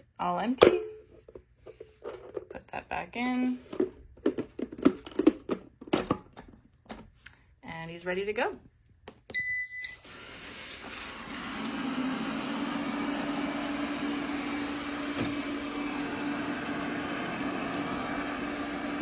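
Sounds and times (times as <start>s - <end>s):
robot vacuum beep: 9.3s - 10.1s
robot vacuum motor humming: 10.6s - 19.0s.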